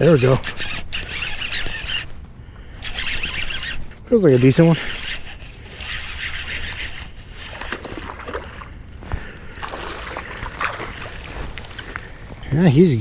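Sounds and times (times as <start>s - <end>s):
fishing reel noise: 0.0s - 2.1s, 2.7s - 8.8s
water sloshing and splashing: 5.7s - 12.2s.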